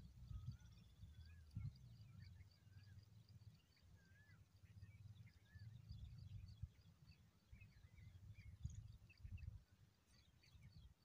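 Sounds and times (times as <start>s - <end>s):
low steady rumble: 0.0s - 7.0s
small birds chirping and whistling: 0.2s - 11.0s.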